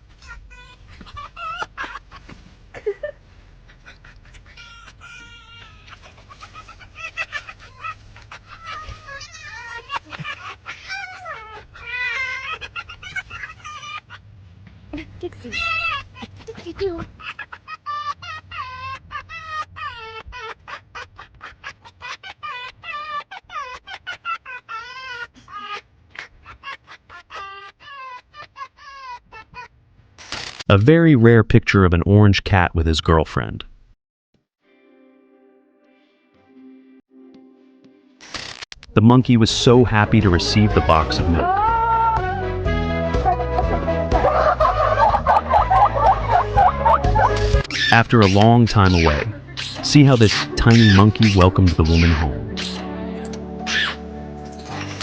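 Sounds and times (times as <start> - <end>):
foxes laughing calls: 0.1 - 14.2, 15.4 - 29.7, 39.7 - 52.9, 53.6 - 54.0.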